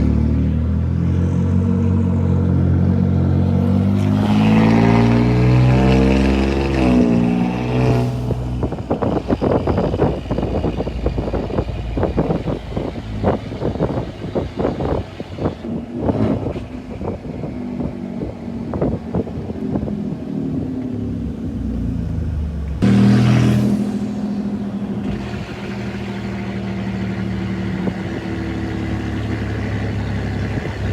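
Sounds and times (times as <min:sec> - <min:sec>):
truck engine running: 0:05.2 - 0:30.9
high turbo whistle: 0:22.8 - 0:26.8.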